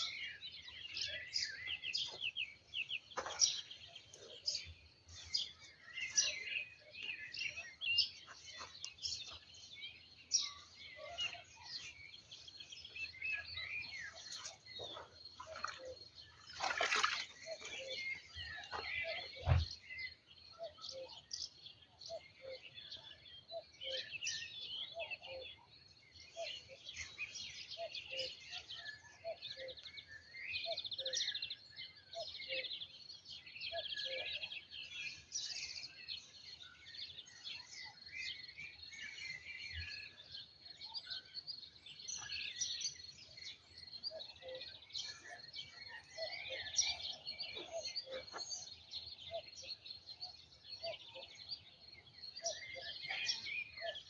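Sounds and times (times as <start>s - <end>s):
songbirds singing and chirping: 0.0s - 54.0s
dull thump: 19.4s - 19.7s.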